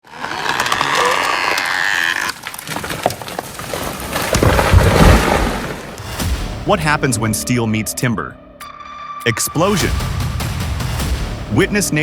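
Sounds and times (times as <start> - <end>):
wood cracking and splintering: 0.0 - 6.1.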